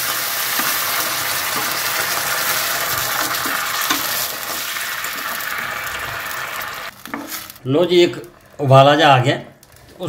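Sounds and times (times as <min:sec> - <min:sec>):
spatula scraping and knocking pan: 0:00.0 - 0:05.4
vegetables sizzling in hot oil: 0:00.0 - 0:07.6.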